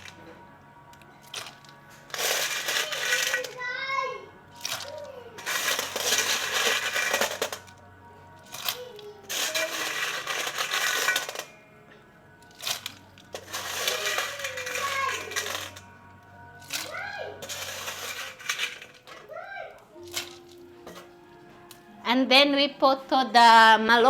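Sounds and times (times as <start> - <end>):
shellfish clattering in pot: 0.0 - 0.3, 0.9 - 3.8, 4.5 - 11.6, 12.4 - 19.3, 19.9 - 21.2.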